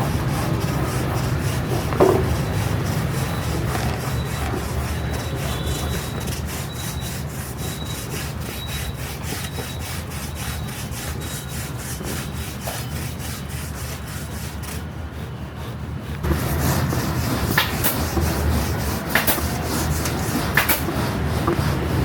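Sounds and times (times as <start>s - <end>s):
rhythmic rasping strokes: 0.0s - 22.0s.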